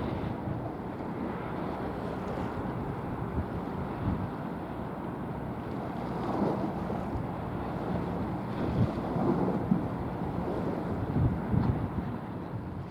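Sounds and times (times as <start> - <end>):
water: 0.0 - 12.9
wind buffeting microphone: 7.8 - 12.9.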